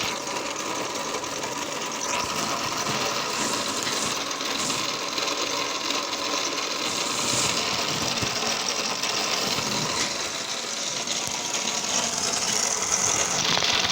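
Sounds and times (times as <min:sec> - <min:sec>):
engine whirring clatter: 0:00.0 - 0:13.9.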